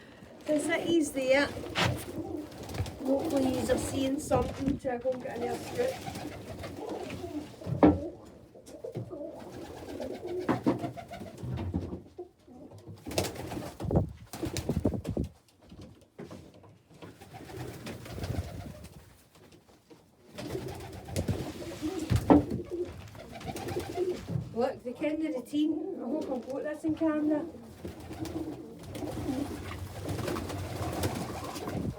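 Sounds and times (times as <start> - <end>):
pigeons cooing: 0.0 - 4.1, 5.4 - 11.4, 20.4 - 24.3, 27.4 - 31.9.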